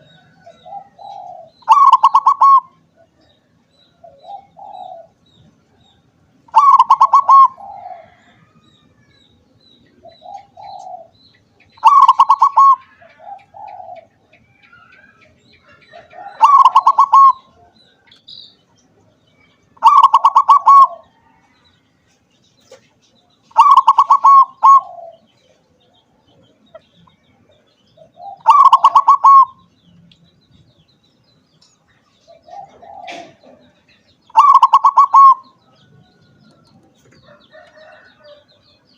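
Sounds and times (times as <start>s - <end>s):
dove bubbling coo: 0.0s - 3.2s, 4.0s - 5.2s, 6.5s - 8.6s, 10.0s - 11.2s, 11.8s - 14.2s, 15.9s - 17.8s, 19.8s - 21.2s, 23.5s - 25.4s, 28.0s - 29.7s, 32.3s - 35.6s
soft low dove coos: 6.5s - 9.1s, 32.3s - 35.4s.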